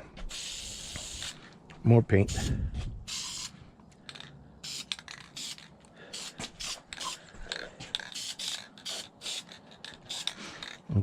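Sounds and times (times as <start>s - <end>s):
spray can hissing bursts: 0.3s - 1.4s, 2.3s - 3.6s, 4.6s - 7.2s, 8.0s - 10.4s.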